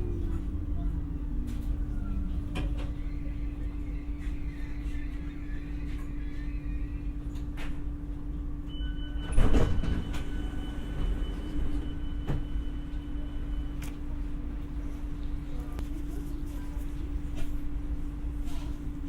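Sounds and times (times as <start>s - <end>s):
sliding train doors: 0.0s - 6.4s, 9.3s - 12.5s
train electrical hum: 0.0s - 19.0s.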